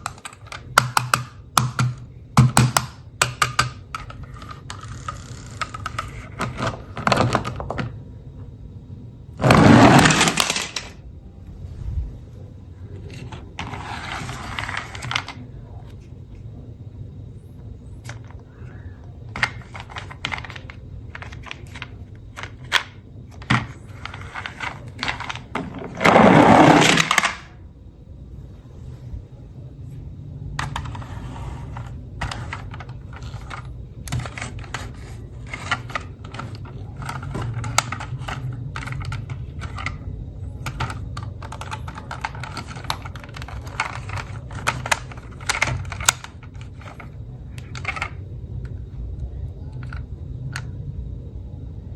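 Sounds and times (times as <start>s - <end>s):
plastic toy cars clattering: 0.0s - 8.5s, 9.3s - 11.0s, 12.7s - 16.4s, 17.8s - 27.6s, 30.5s - 50.8s
loud rushing noise: 11.5s - 12.4s.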